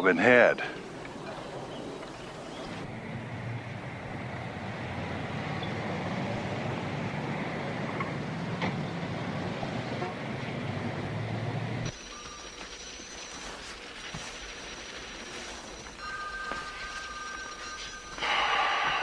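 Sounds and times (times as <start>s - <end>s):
motor vehicle running: 0.8s - 12.0s.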